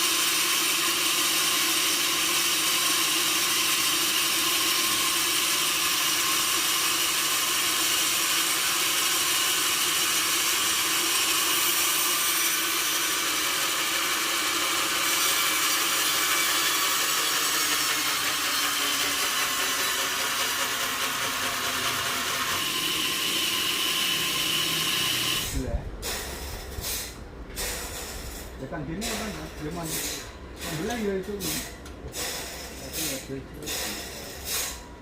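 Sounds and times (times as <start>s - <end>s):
saw cutting through a log: 0.0s - 25.7s.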